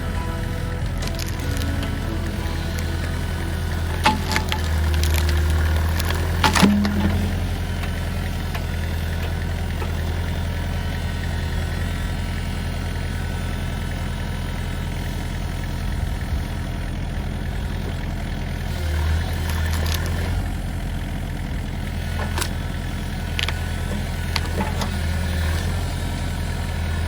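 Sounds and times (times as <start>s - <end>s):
excavator diesel engine running: 0.0s - 27.0s
sharp metal clank: 3.9s - 8.9s.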